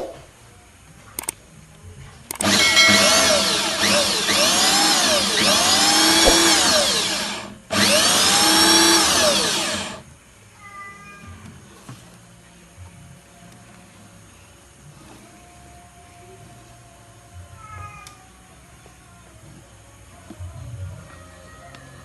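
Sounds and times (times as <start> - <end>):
sharp clicks: 1.2 - 1.4, 2.3 - 4.0, 6.1 - 7.5
electric drill motor whirring: 2.4 - 10.0.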